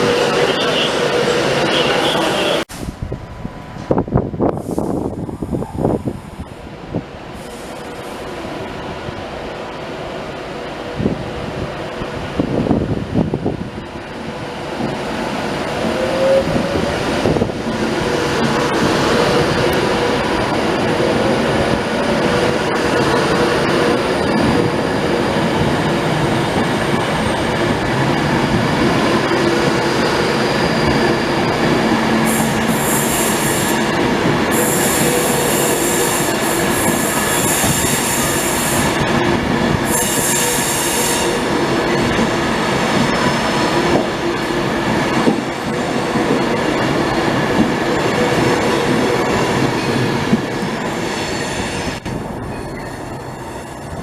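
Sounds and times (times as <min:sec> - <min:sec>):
train rumbling past: 0:00.0 - 0:54.0
train wheel squeal: 0:15.9 - 0:16.9, 0:28.7 - 0:39.0, 0:39.8 - 0:42.2, 0:50.8 - 0:54.0.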